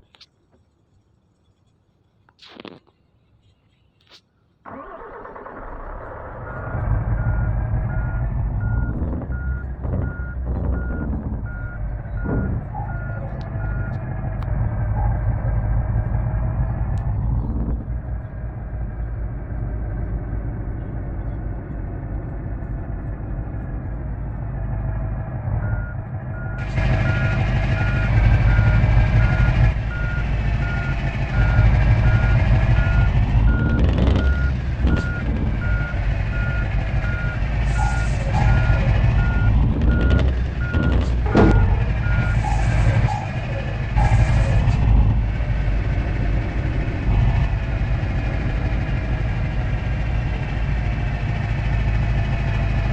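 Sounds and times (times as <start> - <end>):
truck engine running: 4.7 - 52.9
reversing alarm beeping: 6.5 - 14.0, 25.6 - 44.5.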